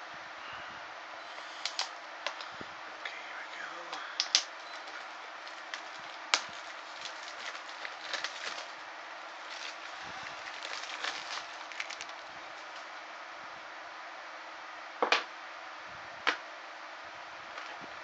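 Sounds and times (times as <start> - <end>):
steady background hum: 0.0 - 18.0
plastic case crackling and rustling: 1.5 - 2.6, 3.9 - 13.0.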